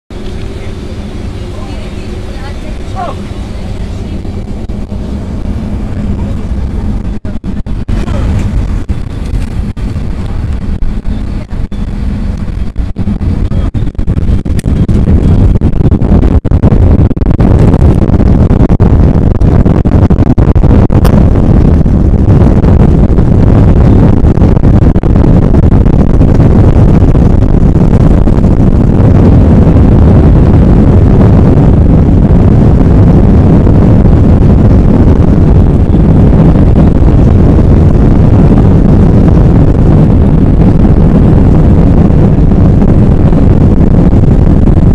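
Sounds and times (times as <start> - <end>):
jet engines at takeoff power: 0.1 - 44.9.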